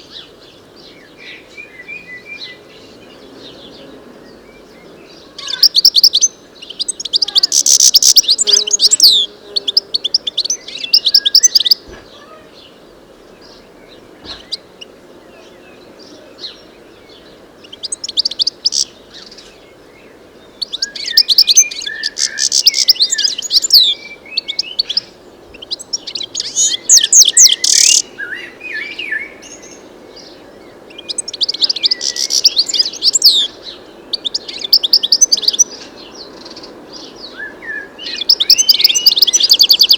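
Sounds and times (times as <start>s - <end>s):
goldfinch twittering: 5.4s - 11.9s, 17.6s - 19.3s, 20.6s - 28.0s, 30.9s - 37.2s, 38.0s - 39.9s.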